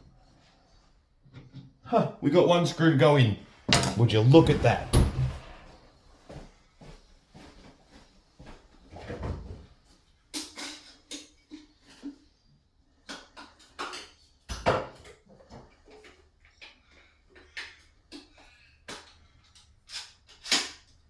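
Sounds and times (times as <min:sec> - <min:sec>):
hand tools and panels clattering: 0:03.7 - 0:05.7.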